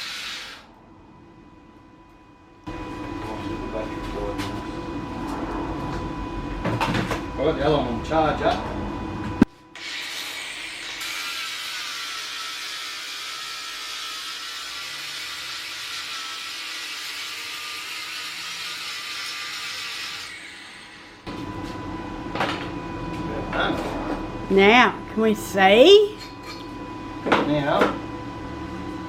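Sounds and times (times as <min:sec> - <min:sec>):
angle grinder grinding steel: 0:00.0 - 0:00.7, 0:09.8 - 0:21.3.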